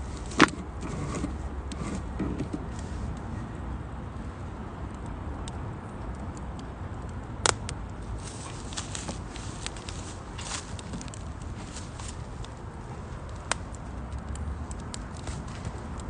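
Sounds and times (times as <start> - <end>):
fire crackling: 0.0 - 16.0
wood fire rumbling in stove: 0.0 - 16.0
sharp pop of burning wood: 7.4 - 7.8, 13.2 - 16.0.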